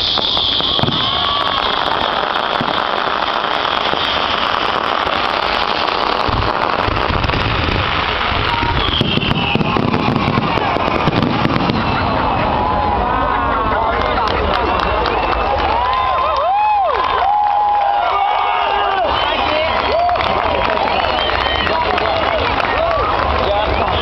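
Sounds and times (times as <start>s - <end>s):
high falling whistle: 0.0s - 2.8s, 8.4s - 12.4s
fireworks crackling: 0.0s - 17.7s, 18.3s - 24.0s.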